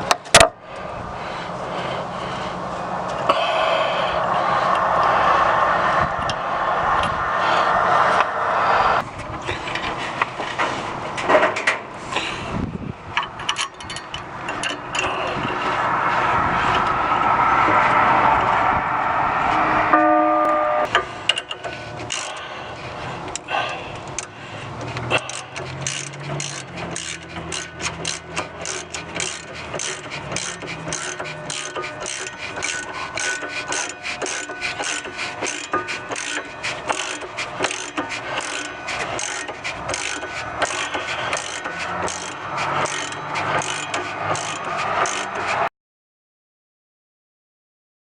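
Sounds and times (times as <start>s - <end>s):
brief ringing tone: 19.6s - 20.9s
small mechanism clicking: 20.9s - 22.4s, 23.3s - 45.7s.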